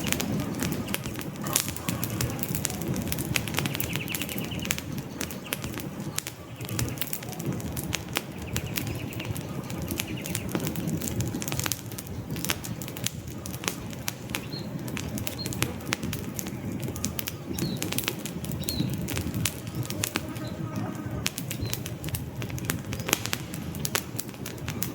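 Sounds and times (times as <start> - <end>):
faint bird chirps: 0.0 - 21.9
campfire crackling and popping: 0.0 - 24.9
rumble of flames: 0.0 - 24.9.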